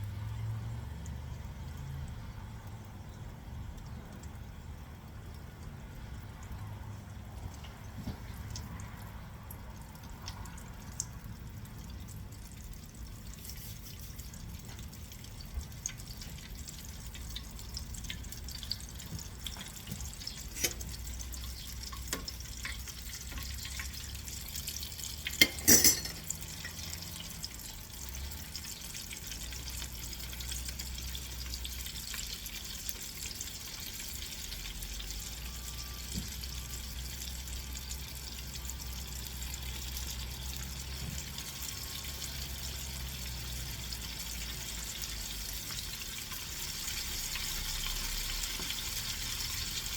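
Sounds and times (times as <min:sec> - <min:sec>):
chicken frying in hot oil: 0:00.0 - 0:49.9.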